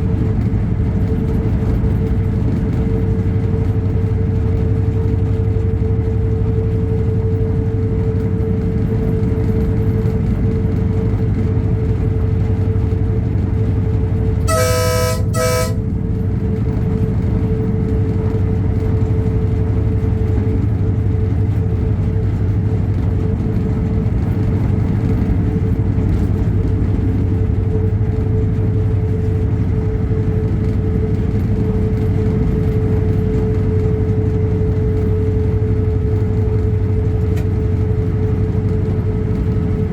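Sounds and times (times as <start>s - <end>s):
diesel train engine drone: 0.0s - 39.9s
locomotive horn toots: 14.4s - 16.0s.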